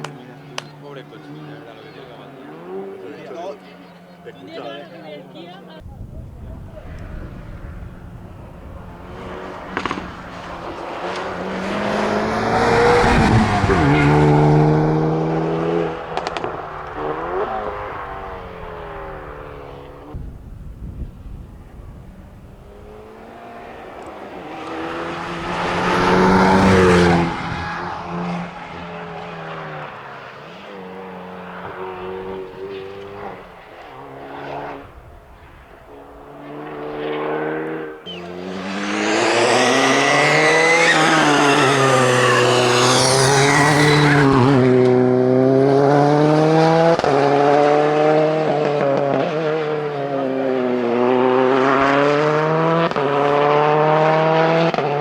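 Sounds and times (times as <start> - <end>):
rally car engine revving: 0.0 - 55.0
tyre squeal: 38.0 - 38.4, 39.3 - 44.4.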